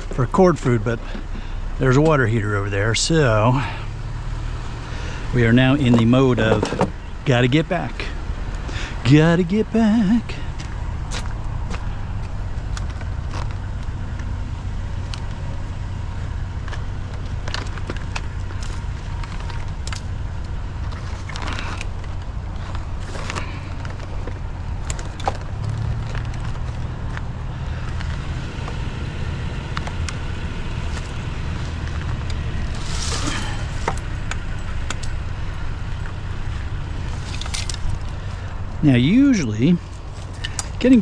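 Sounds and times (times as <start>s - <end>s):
vehicle engine and road noise: 0.0s - 41.0s
light rattles and clicks: 16.4s - 28.9s, 29.7s - 41.0s.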